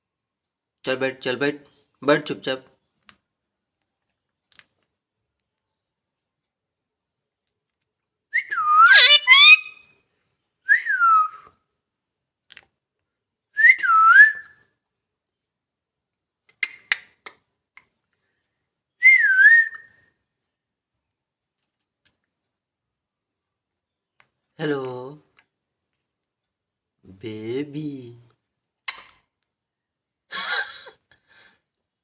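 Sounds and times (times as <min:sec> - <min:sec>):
parrot whistling: 0:08.4 - 0:09.9, 0:10.7 - 0:11.4, 0:19.0 - 0:19.9
parrot chirps: 0:08.4 - 0:10.0.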